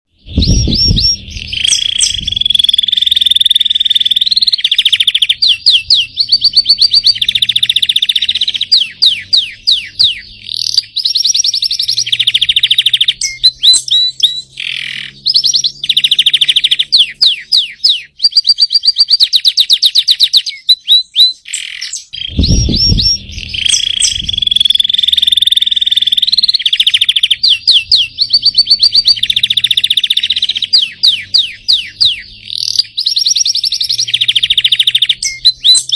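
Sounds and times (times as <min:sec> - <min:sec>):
canary singing trills: 0:00.1 - 0:35.9
low thump: 0:00.3 - 0:02.3, 0:22.3 - 0:24.4.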